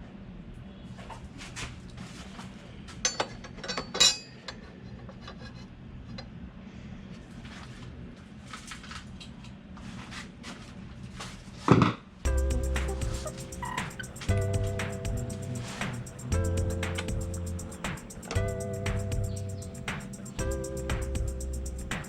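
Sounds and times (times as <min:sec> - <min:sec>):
metal tools clinking: 0:03.1 - 0:04.7.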